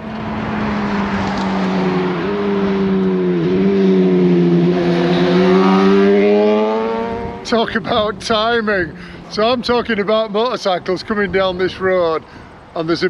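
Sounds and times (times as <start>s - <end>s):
motorcycle engine passing: 0.2s - 7.5s.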